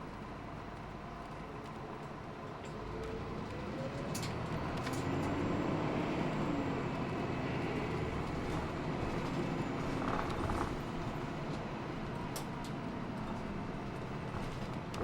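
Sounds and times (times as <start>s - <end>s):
bus engine whine: 0.0s - 15.0s
road noise: 3.1s - 15.0s
bodywork rattles: 9.0s - 11.0s, 13.9s - 15.0s.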